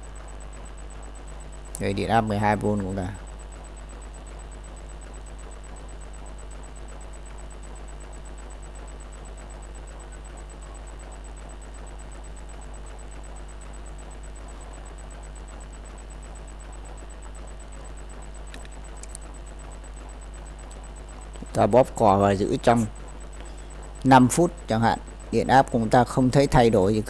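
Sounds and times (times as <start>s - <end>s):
faint high whine: 0.0s - 27.0s
power supply humming: 0.0s - 27.0s
light clicks: 18.4s - 19.3s.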